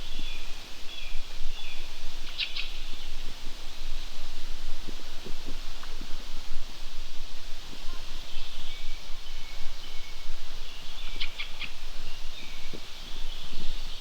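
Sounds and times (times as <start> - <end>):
small birds calling: 0.0 - 2.9, 8.3 - 14.0
outdoor background noise: 0.0 - 14.0.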